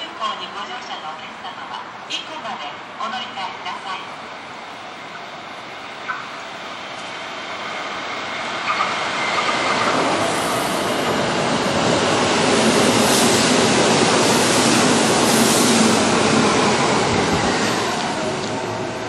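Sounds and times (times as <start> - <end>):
train wheels rushing on rails: 4.2 - 19.0.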